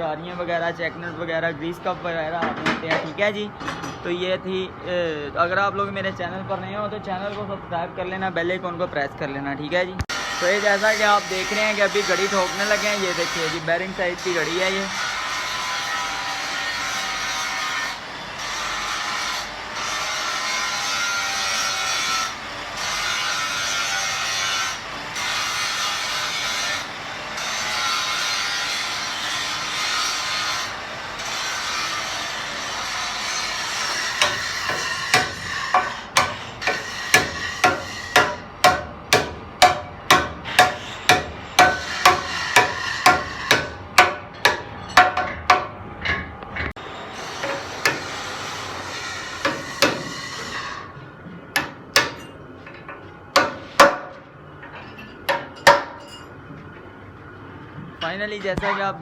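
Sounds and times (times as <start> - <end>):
rasping scraping sound: 10.1 - 45.0
hammer blows on metal: 33.4 - 45.8.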